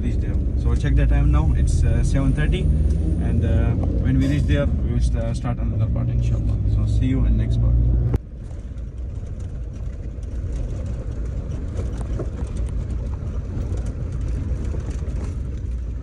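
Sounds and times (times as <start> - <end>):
car engine and tyres rumbling: 0.0 - 16.0
light rattles: 8.3 - 16.0.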